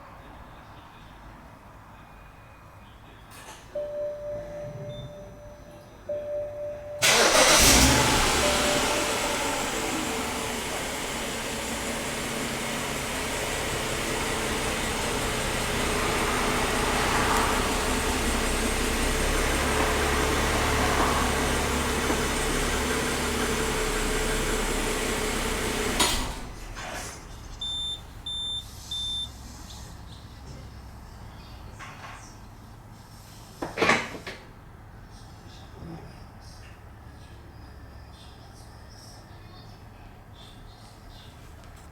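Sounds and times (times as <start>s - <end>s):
car engine cranking and idling: 7.0s - 28.6s
short high beeps: 27.6s - 29.3s.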